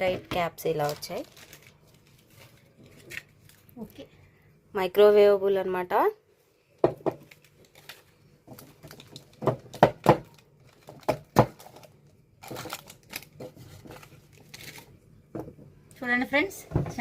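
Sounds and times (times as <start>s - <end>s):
packaging crinkling: 0.6s - 3.9s, 7.2s - 15.0s.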